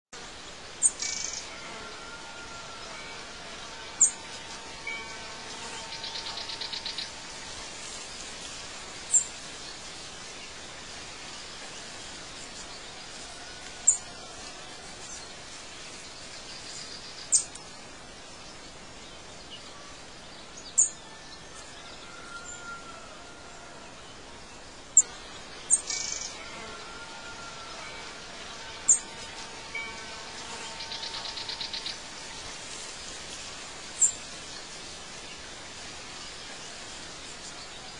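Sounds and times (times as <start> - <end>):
background hiss: 0.2 - 37.9
buzzy bird trill: 25.7 - 32.1.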